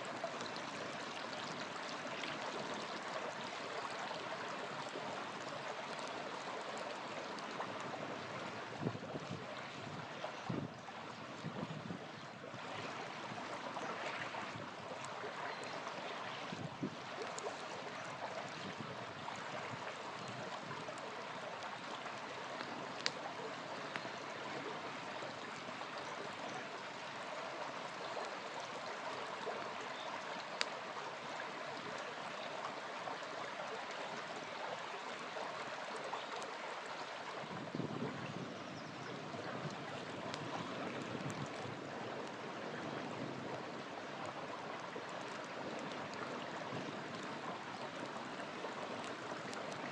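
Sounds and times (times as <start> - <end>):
river flowing: 0.0 - 49.9
campfire crackling pops: 22.5 - 24.4.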